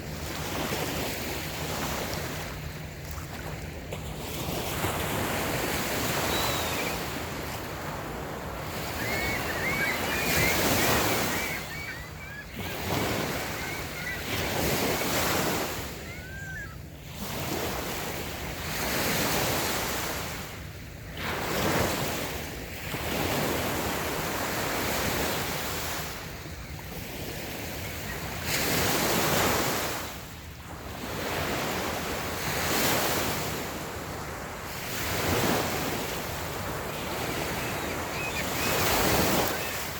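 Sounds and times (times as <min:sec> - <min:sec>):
small waves breaking on sand: 0:00.0 - 0:39.9
faint high chirps: 0:06.1 - 0:07.2, 0:08.9 - 0:14.4, 0:37.3 - 0:39.9.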